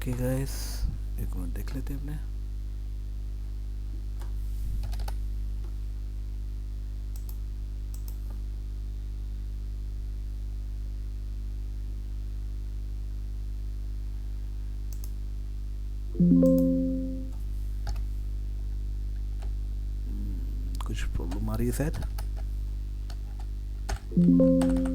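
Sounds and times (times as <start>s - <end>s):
low electrical hum: 0.0s - 24.9s
computer keyboard clicks: 4.2s - 5.2s, 7.2s - 8.4s, 14.9s - 15.2s, 20.8s - 22.5s, 23.1s - 24.9s.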